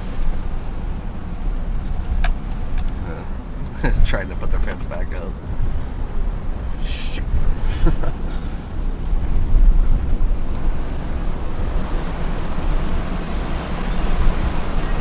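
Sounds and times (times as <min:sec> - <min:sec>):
car road noise: 0:00.0 - 0:15.0
wind buffeting microphone: 0:05.4 - 0:15.0.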